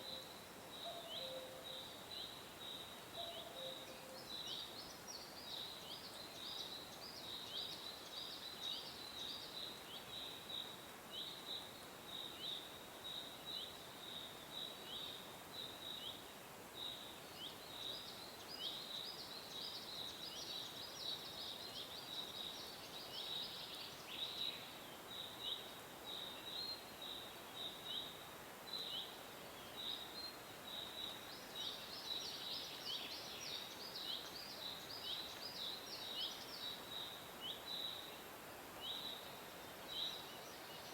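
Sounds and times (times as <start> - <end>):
faint background hiss: 0.0 - 40.9.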